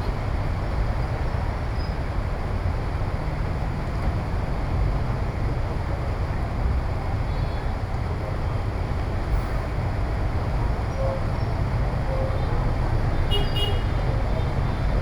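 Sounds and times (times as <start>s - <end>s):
street traffic rumble: 0.0s - 15.0s
vehicle horn double toot: 13.3s - 14.0s.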